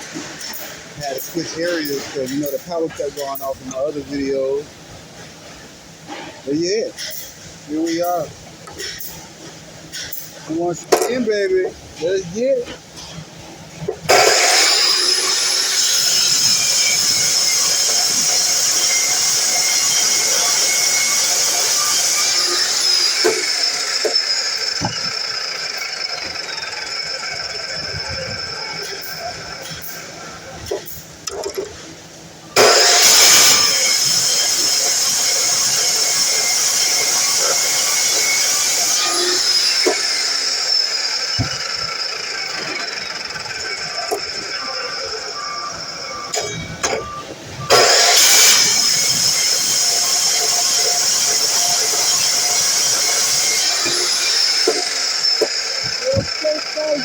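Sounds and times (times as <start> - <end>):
saw motor whining: 14.1 - 31.8, 32.5 - 57.0
sharp knocks: 41.4 - 41.9.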